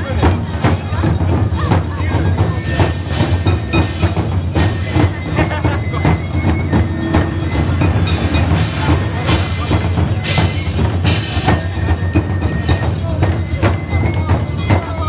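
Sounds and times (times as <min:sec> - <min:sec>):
drum and wood-block rhythm: 0:00.0 - 0:15.0
faint held high tone: 0:01.8 - 0:15.0.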